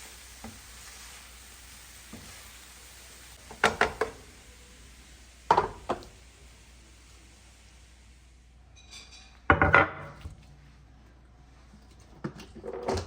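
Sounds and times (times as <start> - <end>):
food sizzling in a pan: 0.0 - 10.2
utensil knocking against pan: 3.5 - 4.2.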